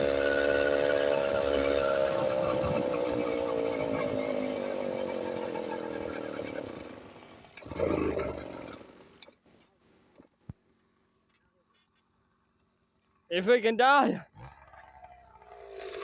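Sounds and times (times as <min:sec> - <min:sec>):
small engine buzzing: 0:00.0 - 0:09.4, 0:14.4 - 0:16.0.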